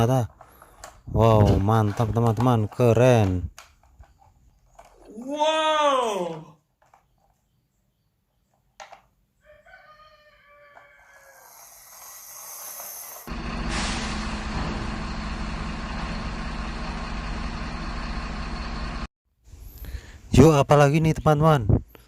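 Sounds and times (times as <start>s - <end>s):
rooster crowing: 9.4s - 11.9s
truck engine rumbling: 12.2s - 19.1s.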